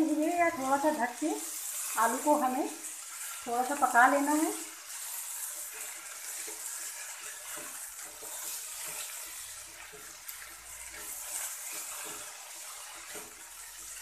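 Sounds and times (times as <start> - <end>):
potatoes sizzling in hot oil: 0.0 - 14.0
spatula scraping: 3.2 - 14.0.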